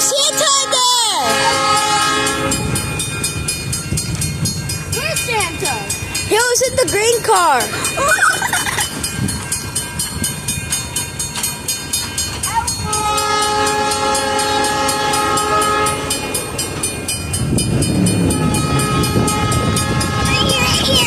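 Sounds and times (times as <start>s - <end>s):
train horn: 0.0s - 3.0s, 12.8s - 16.5s, 17.9s - 21.0s
train wheels clicking: 1.8s - 21.0s.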